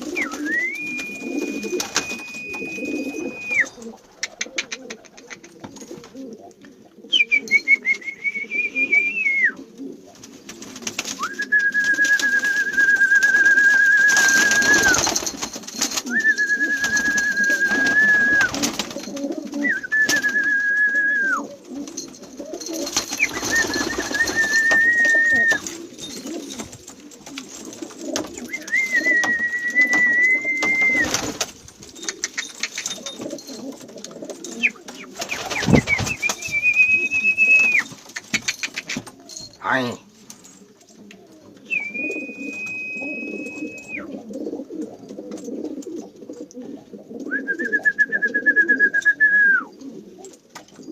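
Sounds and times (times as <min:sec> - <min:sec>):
pigeons cooing: 0:00.0 - 0:50.9
long high whistled notes: 0:00.1 - 0:03.8, 0:23.1 - 0:25.7, 0:35.4 - 0:37.9, 0:41.7 - 0:44.0.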